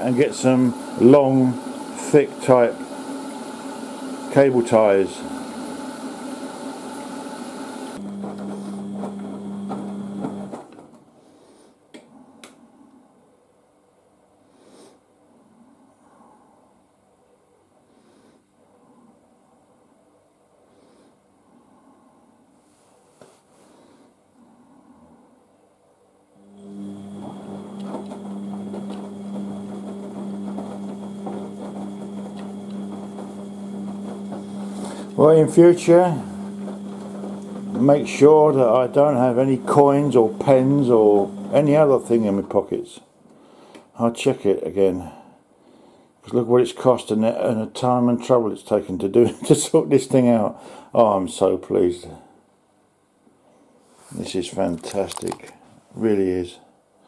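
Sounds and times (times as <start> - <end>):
washing machine humming: 0.0 - 10.7, 26.4 - 42.7.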